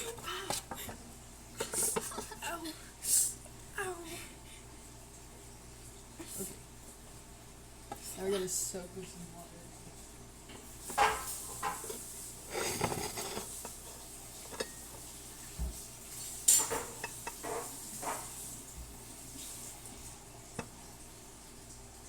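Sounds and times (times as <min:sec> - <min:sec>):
metal pan and cutlery clattering: 0:10.9 - 0:13.8, 0:14.4 - 0:15.0, 0:16.4 - 0:18.3.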